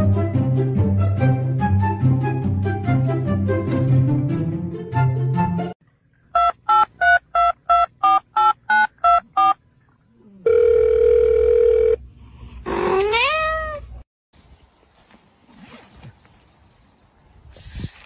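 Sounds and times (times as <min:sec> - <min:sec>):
music: 0:00.0 - 0:05.8
telephone keypad beeps: 0:06.4 - 0:09.6
steady telephone tone: 0:10.4 - 0:12.0
cat meowing: 0:12.8 - 0:13.9.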